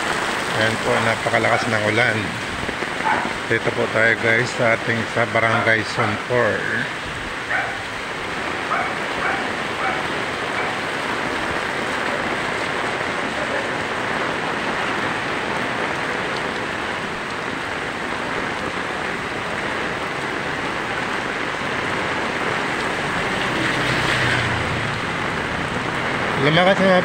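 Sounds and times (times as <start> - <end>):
heavy rain on pavement: 0.0 - 27.0
motorcycle passing: 7.2 - 13.4, 22.1 - 27.0.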